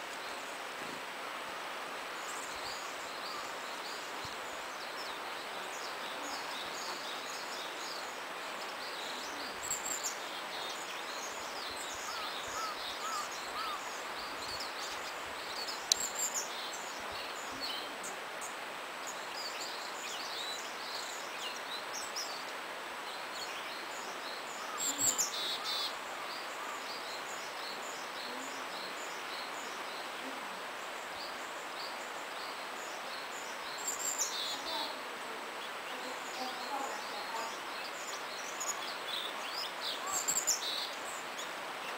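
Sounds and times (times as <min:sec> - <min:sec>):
small stream rushing: 0:00.0 - 0:41.9
willow tit calls: 0:02.2 - 0:22.5, 0:35.6 - 0:41.9.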